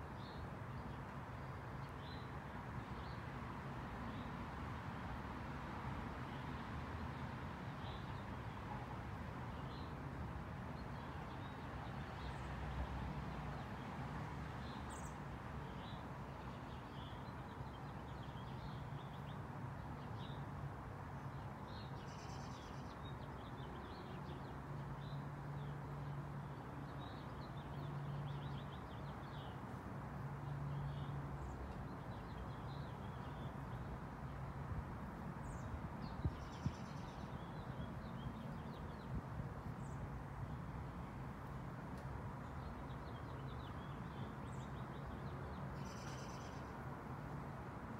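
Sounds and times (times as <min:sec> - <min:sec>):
small birds chirping: 0:42.4 - 0:46.7.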